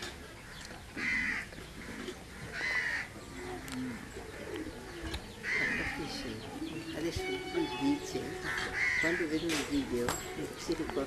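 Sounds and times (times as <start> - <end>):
bird harsh calls: 0.0 - 11.0
faint low cooing: 1.0 - 9.0.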